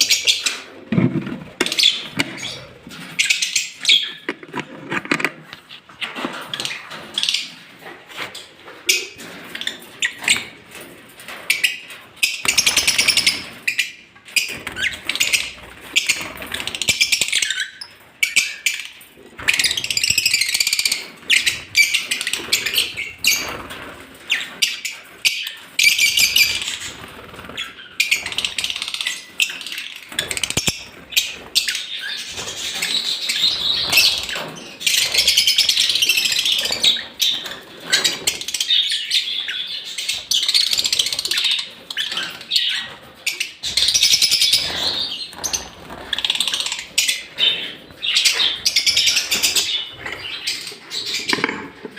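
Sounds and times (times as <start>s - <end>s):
lovebirds chattering: 0.0s - 5.4s, 11.2s - 51.9s
sharp clicks and rustles: 3.8s - 12.2s, 49.2s - 51.9s.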